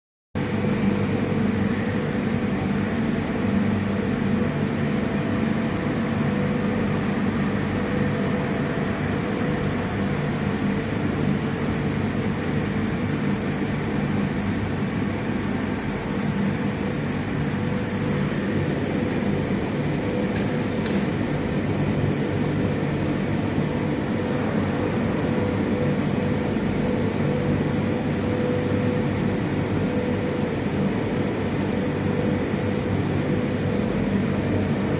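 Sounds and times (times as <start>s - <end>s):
industrial machinery drone: 0.4s - 34.9s
sharp click: 20.3s - 21.2s.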